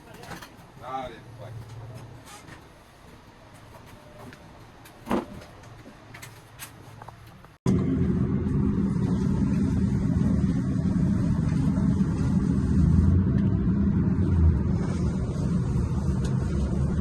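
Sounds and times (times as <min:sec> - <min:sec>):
low mechanical rumble: 0:07.7 - 0:17.0.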